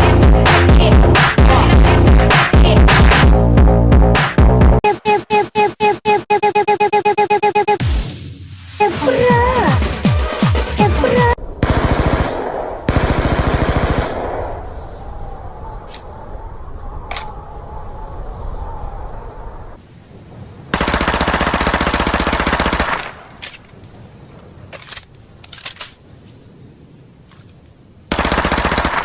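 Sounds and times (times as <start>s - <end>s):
rapid automatic gunfire rattle: 11.6s - 14.4s, 20.8s - 23.2s, 28.1s - 29.0s.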